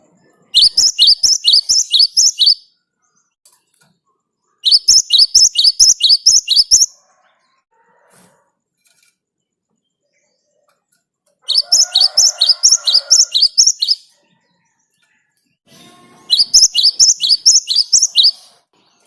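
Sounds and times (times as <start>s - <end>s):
great tit singing: 0.4s - 3.4s, 4.4s - 7.0s, 11.5s - 14.9s, 16.3s - 19.0s.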